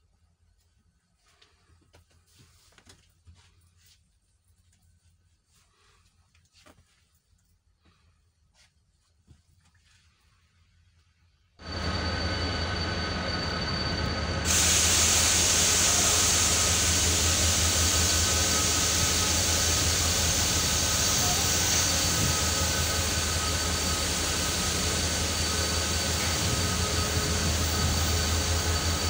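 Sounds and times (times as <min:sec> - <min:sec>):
train mechanical hum: 0:00.0 - 0:29.0
loud even hiss: 0:14.4 - 0:29.0.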